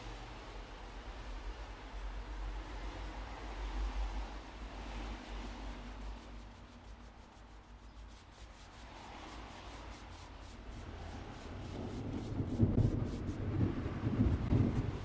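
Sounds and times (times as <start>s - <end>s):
paintbrush swishing on wood: 0.4s - 15.0s
low rumble: 10.5s - 15.0s.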